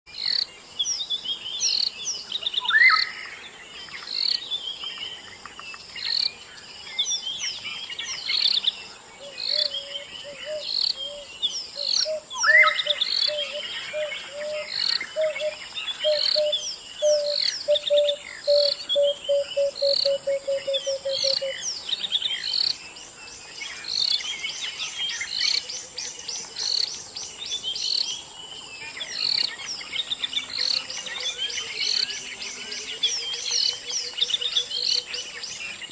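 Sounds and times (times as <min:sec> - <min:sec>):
songbirds chirping and singing: 0:00.1 - 0:35.9
lower trilling bird call: 0:02.6 - 0:03.4, 0:09.2 - 0:22.5.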